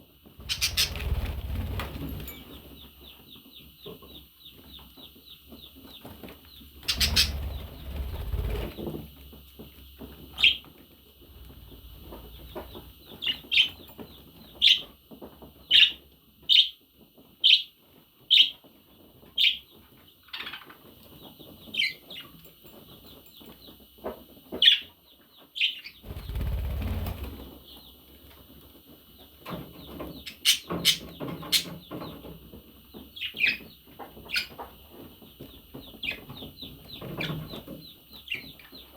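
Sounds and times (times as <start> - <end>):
parrots twittering: 0.4 - 2.4, 6.8 - 8.2
wings flapping: 0.4 - 2.6, 6.8 - 9.1, 26.0 - 27.8
sharp parrot chirps: 6.9 - 7.4.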